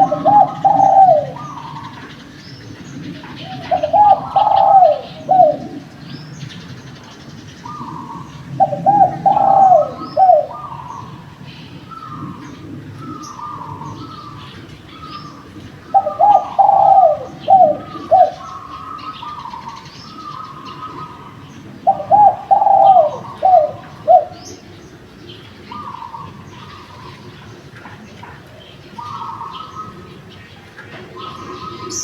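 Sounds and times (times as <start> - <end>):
dove cooing: 0.0 - 32.0
faint cooing of other doves: 0.0 - 32.0
small birds chirping: 0.0 - 32.0.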